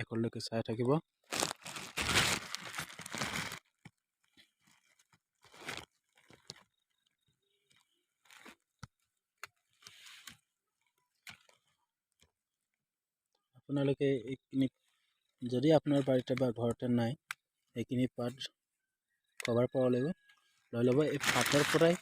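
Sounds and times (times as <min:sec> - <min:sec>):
leaves crunching and rustling: 0:01.3 - 0:03.6, 0:21.0 - 0:22.0.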